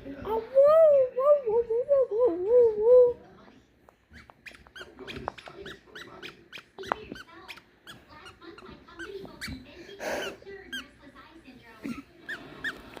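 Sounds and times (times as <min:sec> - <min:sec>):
small monkey squeaking: 0:04.1 - 0:10.9.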